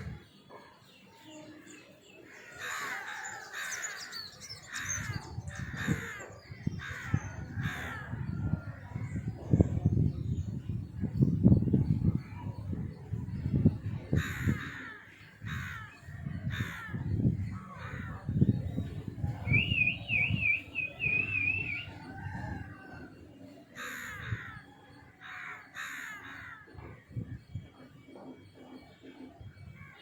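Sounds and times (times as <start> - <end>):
harsh bird calls: 14.1 - 23.1
warbling bird whistle: 19.3 - 22.6.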